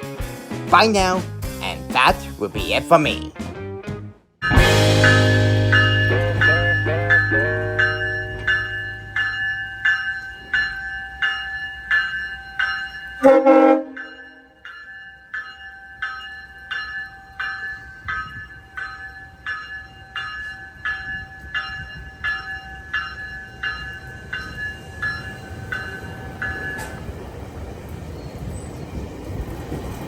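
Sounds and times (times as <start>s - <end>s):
railway bell ringing: 4.4s - 30.0s
train rumble: 4.5s - 14.4s, 16.7s - 30.0s.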